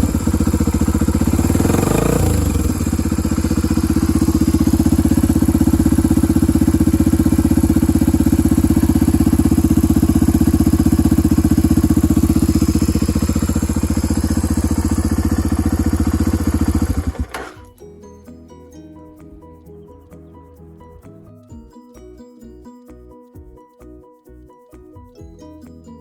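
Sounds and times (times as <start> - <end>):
motorcycle engine idling: 0.0 - 17.8.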